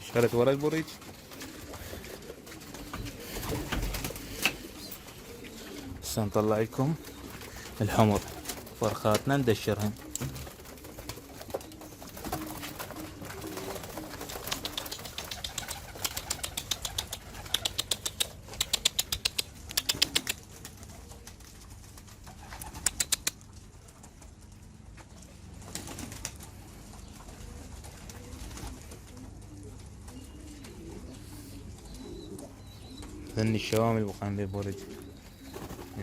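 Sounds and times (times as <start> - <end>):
pigeons cooing: 0.0 - 36.0
wing claps: 14.2 - 20.4.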